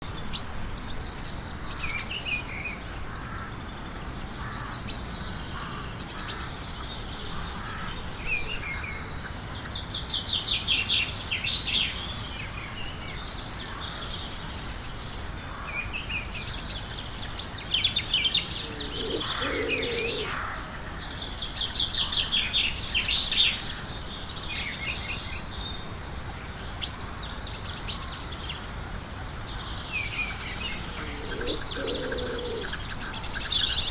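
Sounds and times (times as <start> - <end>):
garden birds singing: 0.0 - 33.9.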